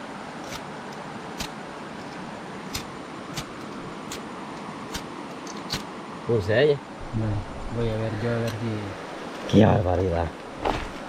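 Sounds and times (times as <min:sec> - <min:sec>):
steady hiss: 0:00.0 - 0:11.0
lighter clicking: 0:02.7 - 0:03.5.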